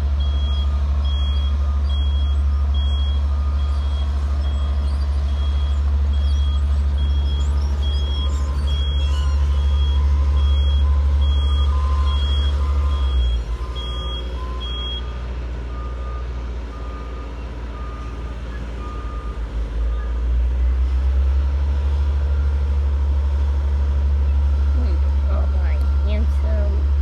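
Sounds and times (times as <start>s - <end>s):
diesel engine running: 0.0s - 27.0s
lower-pitched reversing beeper: 1.1s - 15.1s.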